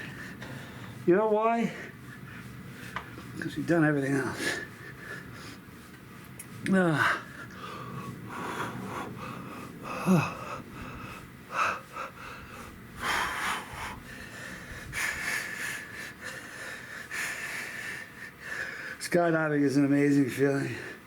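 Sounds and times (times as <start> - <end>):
man breathing hard: 0.0 - 3.4, 4.1 - 6.0, 6.7 - 19.0, 20.6 - 21.0
man sighing: 9.9 - 10.6.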